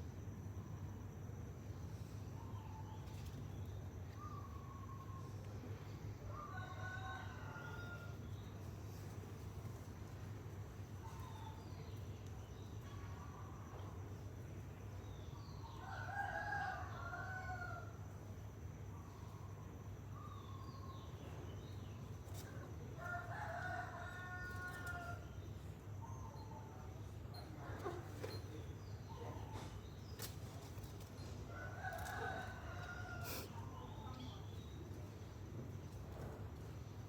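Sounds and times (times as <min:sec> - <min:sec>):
rooster crowing: 0:06.3 - 0:08.3, 0:15.8 - 0:18.0, 0:23.0 - 0:25.3, 0:31.5 - 0:33.6.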